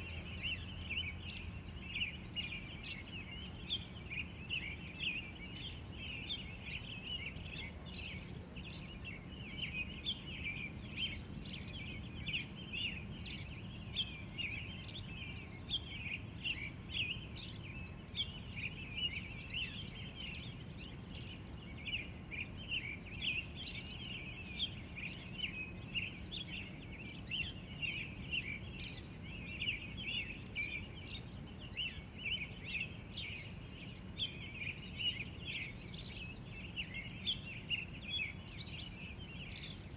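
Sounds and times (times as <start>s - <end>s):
wild birds chirping: 0.0s - 39.9s.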